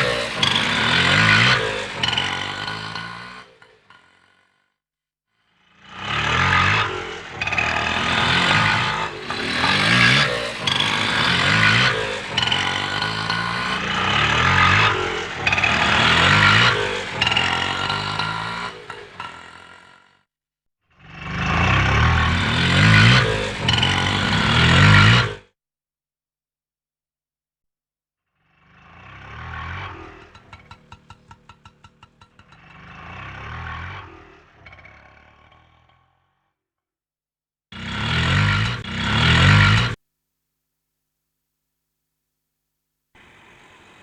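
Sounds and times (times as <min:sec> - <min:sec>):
small engine revving: 0:00.0 - 0:04.7, 0:05.4 - 0:20.3, 0:20.9 - 0:25.6, 0:28.4 - 0:36.5, 0:37.8 - 0:40.0, 0:43.2 - 0:44.0.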